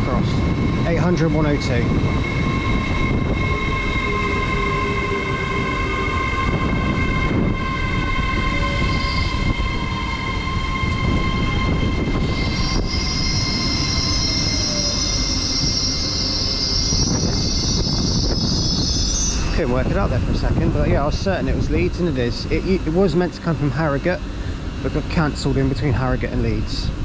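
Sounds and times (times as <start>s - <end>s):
train drive whine: 0.0s - 27.0s
high brake squeal: 7.9s - 20.2s.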